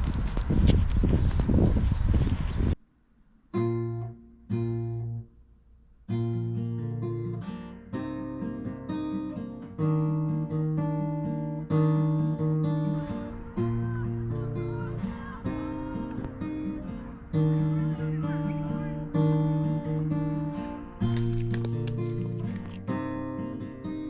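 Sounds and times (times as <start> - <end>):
acoustic guitar strumming: 3.5 - 24.0
loud noise: 13.1 - 21.1.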